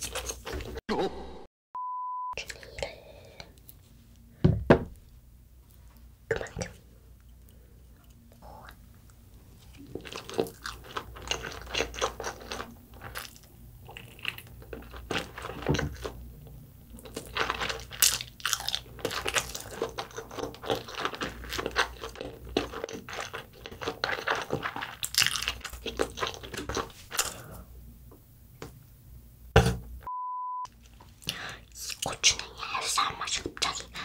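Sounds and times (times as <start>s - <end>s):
person chewing food: 0.0s - 0.8s, 5.7s - 27.7s.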